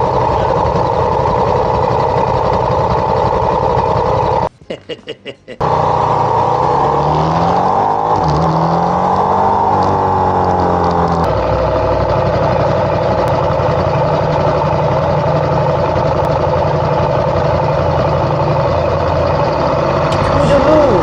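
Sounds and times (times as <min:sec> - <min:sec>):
motorcycle engine accelerating: 0:00.0 - 0:04.5, 0:05.6 - 0:21.0
road noise: 0:05.6 - 0:21.0.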